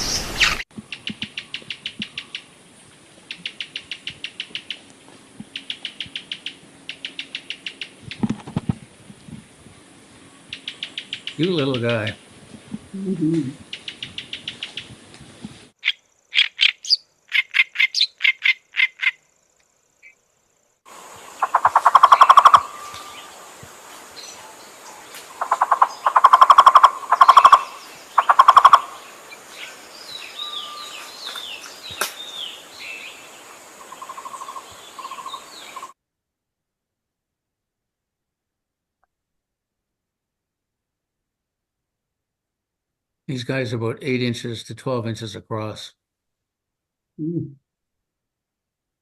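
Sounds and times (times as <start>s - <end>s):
steady hiss: 20.8s - 35.9s.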